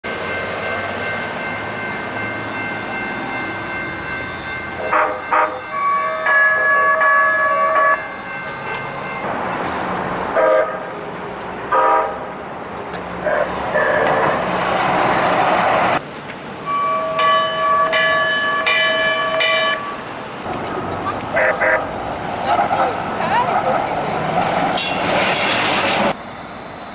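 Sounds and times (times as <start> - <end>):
rushing train noise: 0.0 - 26.9
train horn blasts: 4.8 - 8.0, 10.4 - 10.8, 11.7 - 12.3, 21.4 - 21.9.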